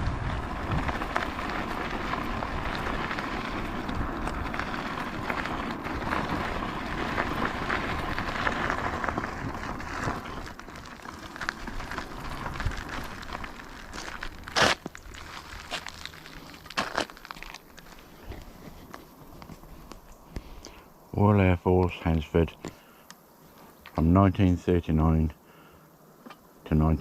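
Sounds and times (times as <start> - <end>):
bicycle clicks and rattles: 0.0 - 20.8
bicycle tyres on gritty surface: 0.0 - 27.0.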